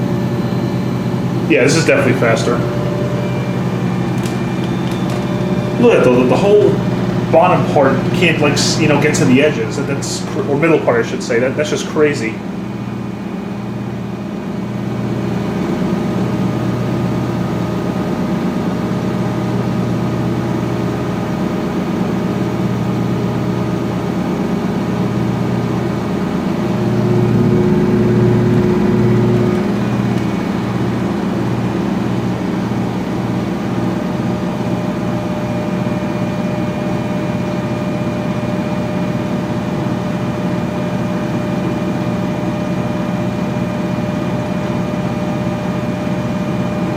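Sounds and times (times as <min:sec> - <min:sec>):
washing machine spinning: 0:00.0 - 0:46.9.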